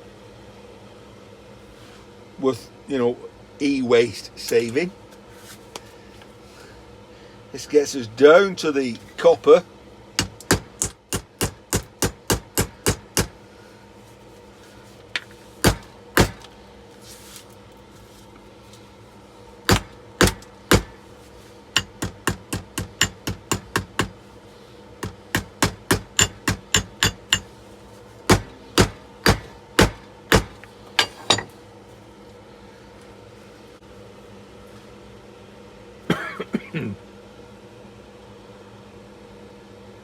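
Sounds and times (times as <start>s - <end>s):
hammer blows on metal: 25.0s - 27.5s, 28.3s - 30.6s.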